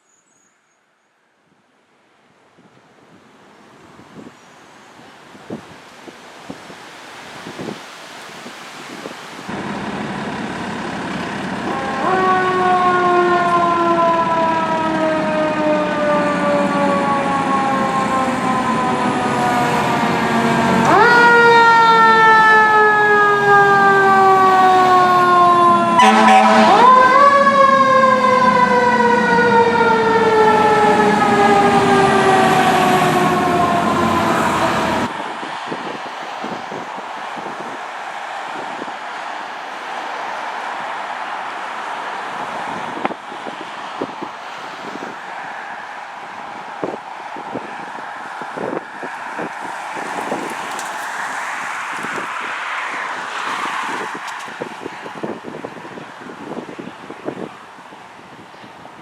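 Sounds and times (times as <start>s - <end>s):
truck engine droning: 9.5s - 35.1s.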